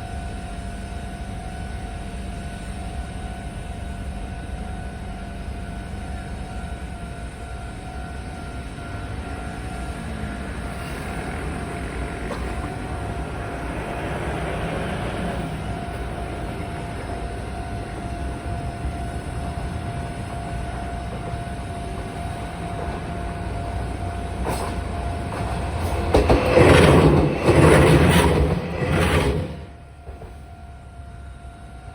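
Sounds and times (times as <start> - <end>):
electric train running on rails: 0.0 - 31.9
train whine: 0.0 - 31.9
wheel clacks over rail joints: 24.3 - 30.4.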